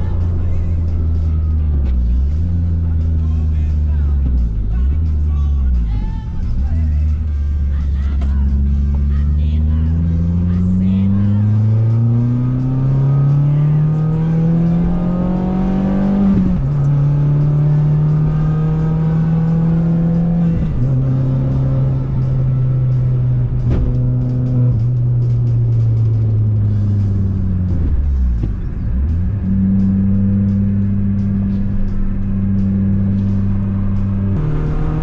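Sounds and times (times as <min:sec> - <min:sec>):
car engine accelerating: 0:00.0 - 0:35.0.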